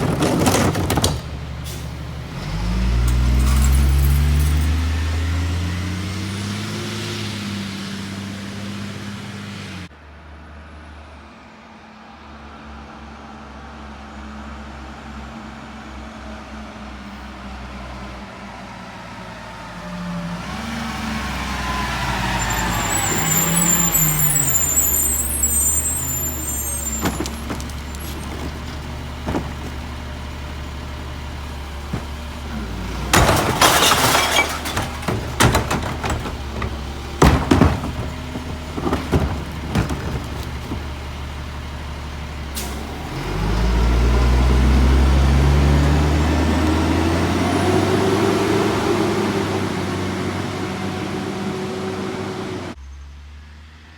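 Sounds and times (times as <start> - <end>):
garbage truck diesel engine revving: 0.0 - 9.9, 19.7 - 52.8
air brakes hissing: 22.0 - 29.8.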